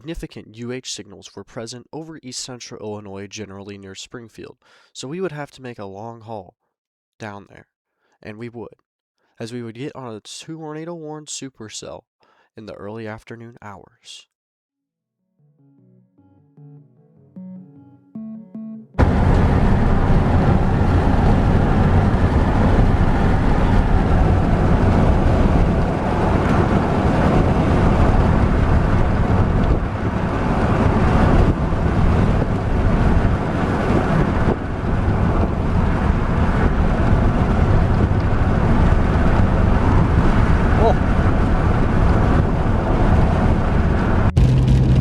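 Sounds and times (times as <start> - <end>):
wind buffeting microphone: 19.0 - 45.0.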